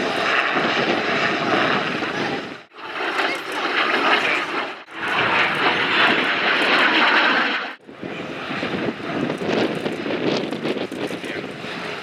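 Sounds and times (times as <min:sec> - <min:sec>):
aircraft engine rush: 0:00.0 - 0:12.0.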